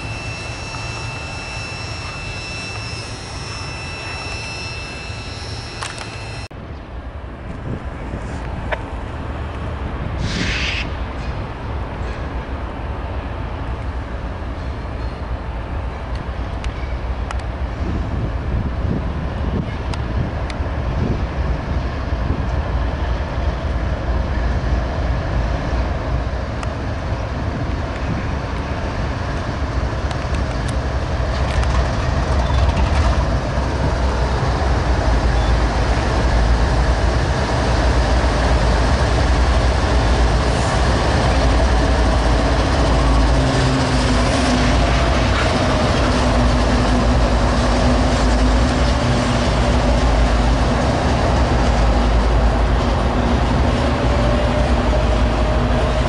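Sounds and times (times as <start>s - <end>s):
faint steady whine: 0.0s - 6.5s
train rumbling on rails: 0.0s - 56.0s.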